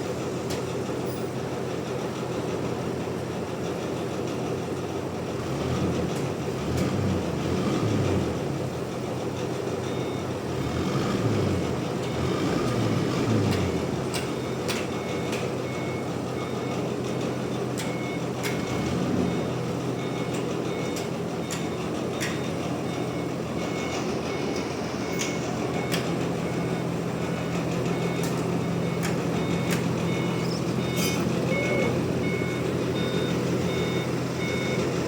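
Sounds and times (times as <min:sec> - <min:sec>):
heavy machine engine running: 0:00.0 - 0:35.0
high beeping tone: 0:27.9 - 0:34.9
clicks: 0:28.2 - 0:30.0.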